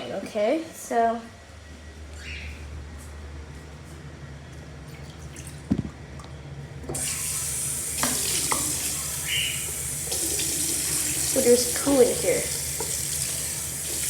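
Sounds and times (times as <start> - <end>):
water running into sink: 6.9 - 14.0.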